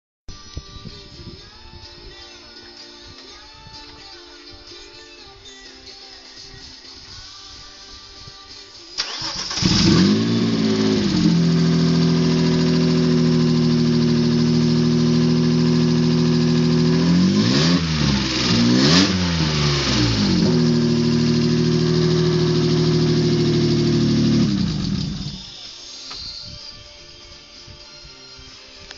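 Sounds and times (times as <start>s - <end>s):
engine revving: 9.0s - 25.6s
engine starting and idling: 9.0s - 25.6s.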